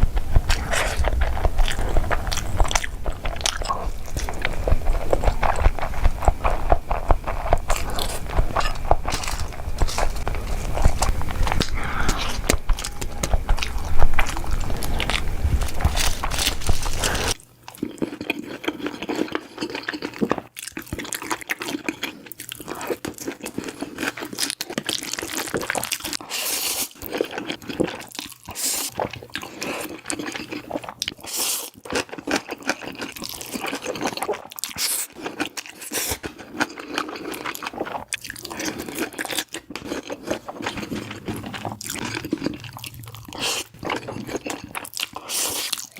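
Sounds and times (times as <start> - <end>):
crunchy bites: 0.0 - 17.4
wet chewing: 0.0 - 45.9.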